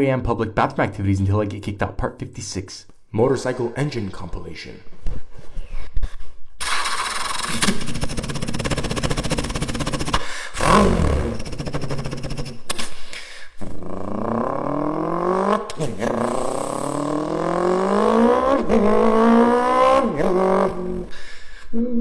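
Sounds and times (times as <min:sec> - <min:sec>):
motorcycle engine accelerating: 0:06.6 - 0:12.7, 0:13.6 - 0:21.1.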